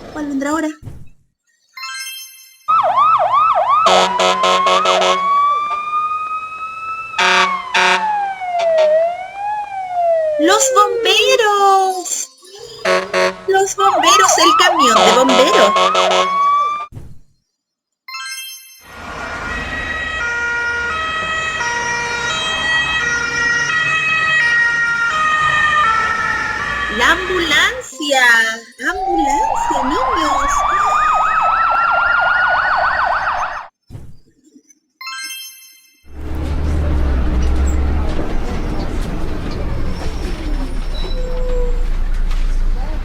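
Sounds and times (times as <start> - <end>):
fire engine siren wailing: 2.7 - 16.9, 18.9 - 28.0, 28.8 - 33.7
air horn blasts: 3.9 - 5.4, 7.2 - 8.1, 12.8 - 13.5, 14.9 - 16.9
low engine rumble: 36.1 - 43.0.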